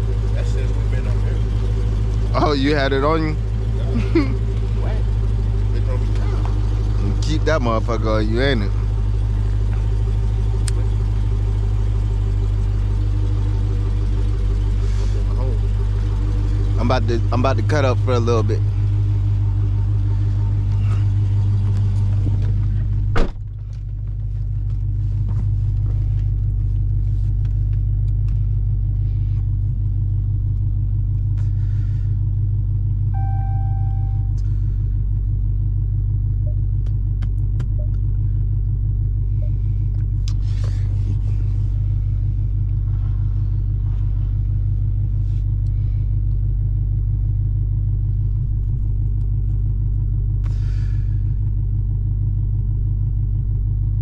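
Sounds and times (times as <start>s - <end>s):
car engine idling: 0.0s - 54.0s
sharp thump: 23.1s - 23.5s
short beep: 33.1s - 34.4s.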